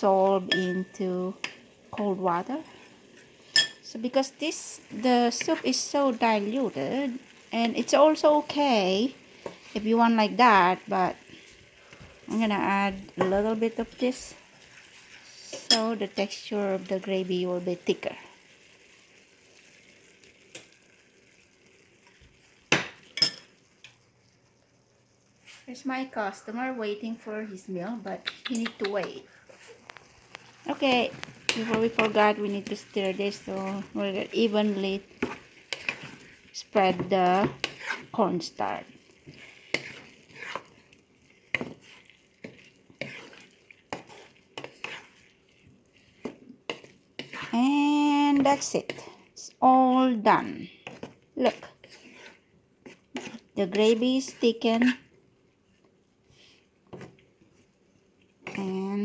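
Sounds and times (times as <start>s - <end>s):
vegetables sizzling in a pan: 0.0s - 28.2s, 28.9s - 59.0s
utensil scraping and knocking pan: 31.0s - 38.2s, 39.2s - 40.8s, 41.5s - 45.2s, 50.8s - 55.1s.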